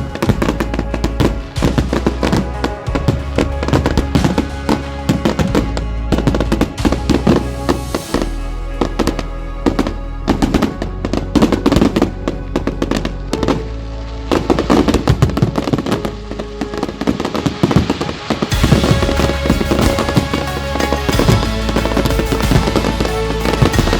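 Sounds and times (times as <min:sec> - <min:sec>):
fireworks banging and crackling: 0:00.0 - 0:08.3, 0:16.8 - 0:23.9
music with bass line: 0:00.0 - 0:23.9.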